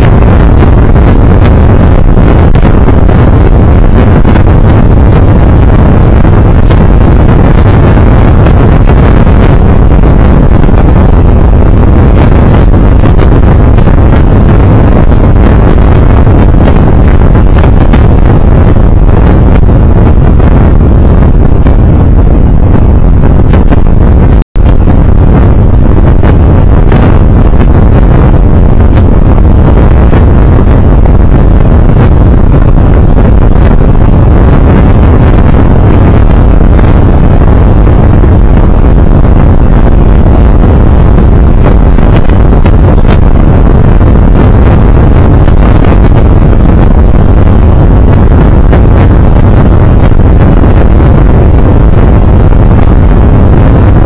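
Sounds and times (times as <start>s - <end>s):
road and engine noise: 0.0s - 25.0s
wind rushing over microphone: 0.0s - 54.0s.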